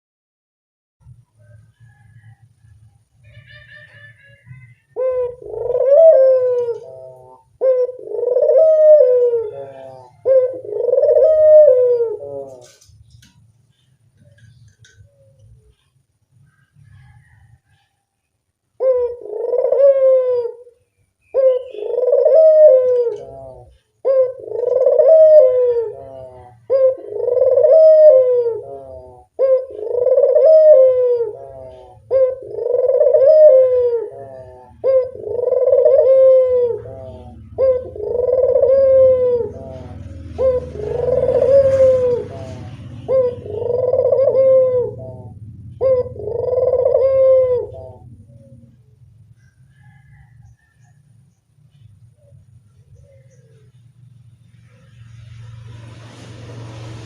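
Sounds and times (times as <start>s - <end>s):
dove cooing: 3.8s - 15.8s, 18.7s - 51.1s, 51.7s - 53.9s
low hum: 30.9s - 49.8s.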